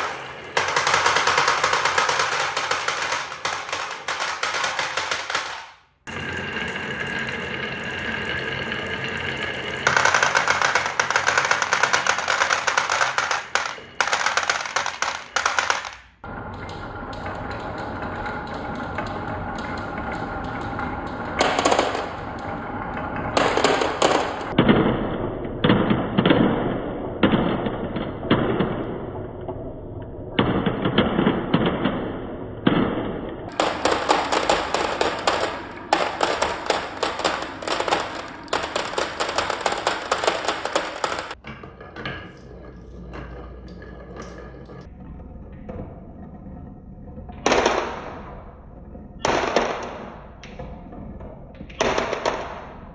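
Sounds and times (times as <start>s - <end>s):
marbles rolling down a marble run: 0.0s - 24.6s, 33.5s - 52.9s.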